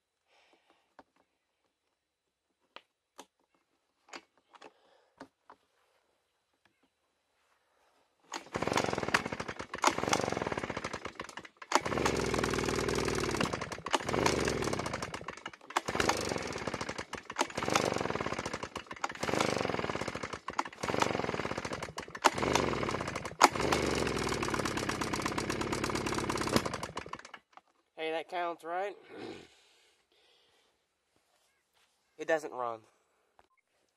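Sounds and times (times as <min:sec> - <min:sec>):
small two-stroke engine sputtering: 0:08.3 - 0:27.6.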